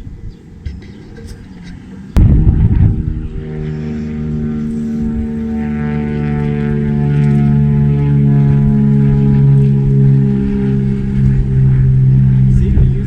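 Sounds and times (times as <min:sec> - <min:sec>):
motor drone: 0:00.0 - 0:13.0
burst of wind-like noise: 0:02.2 - 0:05.4.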